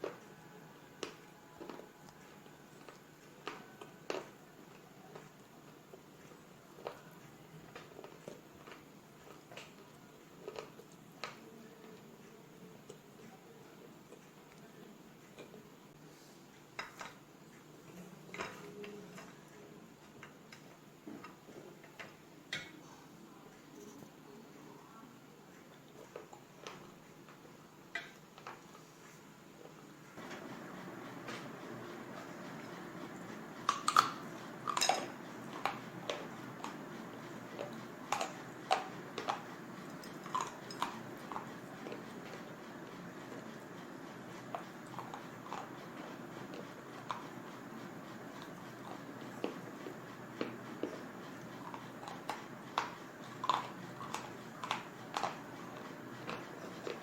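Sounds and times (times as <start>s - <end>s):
crunching and chewing: 1.0s - 13.2s, 29.6s - 57.0s.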